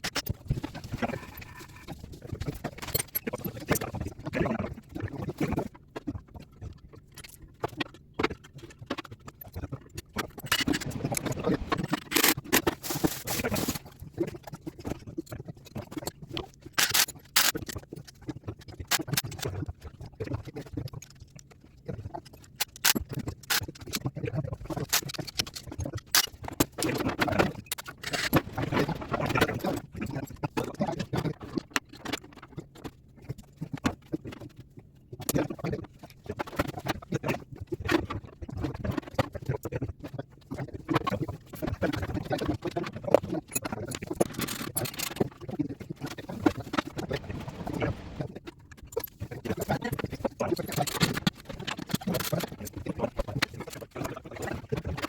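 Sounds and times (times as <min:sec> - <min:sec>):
tools clicking and scraping on metal: 0:16.8 - 0:17.8.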